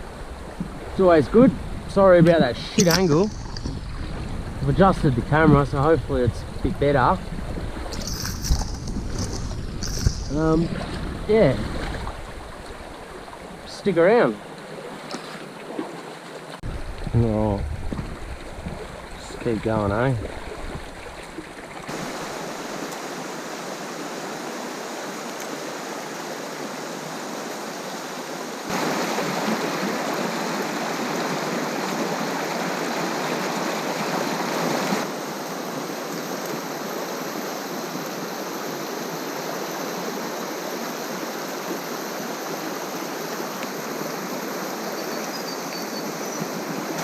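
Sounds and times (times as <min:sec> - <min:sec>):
river water rushing: 0:00.0 - 0:47.0.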